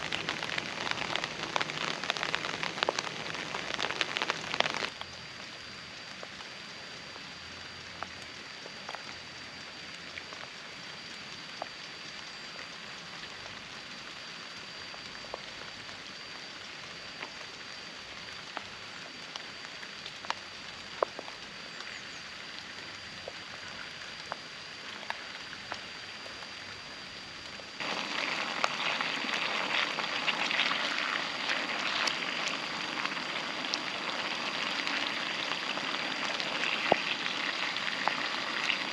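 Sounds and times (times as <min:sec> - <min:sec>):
drops ticking on a surface: 0:00.0 - 0:05.0
faint high whine: 0:00.0 - 0:38.9
food frying in a pan: 0:00.0 - 0:38.9
steady rain: 0:00.0 - 0:38.9.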